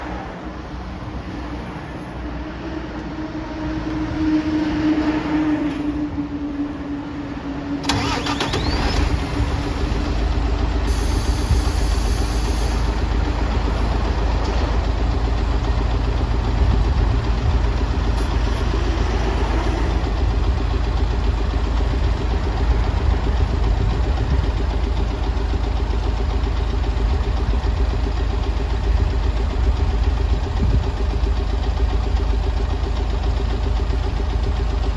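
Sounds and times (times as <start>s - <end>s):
bus engine starting and idling: 0.0s - 34.9s
starter whine: 7.8s - 34.9s.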